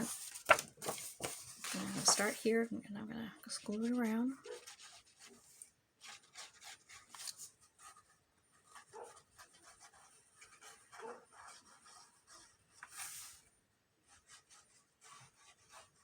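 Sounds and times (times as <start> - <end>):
glue spreading on paper: 0.0 - 2.6, 3.4 - 16.0
paper handling: 0.0 - 2.6, 3.6 - 7.5.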